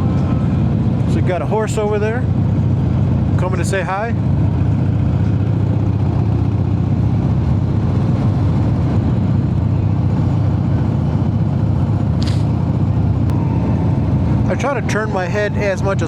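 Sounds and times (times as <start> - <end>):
motorcycle engine running: 12.2 - 13.2.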